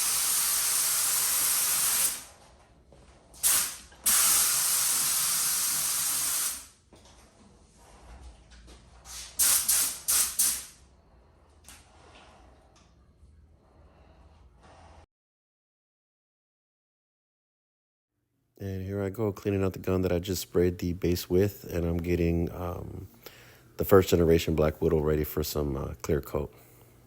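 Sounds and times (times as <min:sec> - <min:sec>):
air spray gun hissing: 0:00.0 - 0:02.4, 0:03.4 - 0:06.8, 0:09.1 - 0:10.8.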